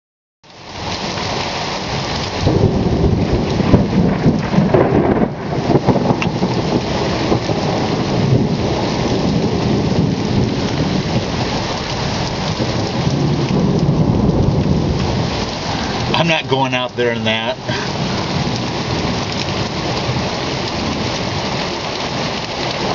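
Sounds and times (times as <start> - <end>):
heavy rain pouring: 0.5 - 22.9
thunder rumbling: 2.4 - 22.9.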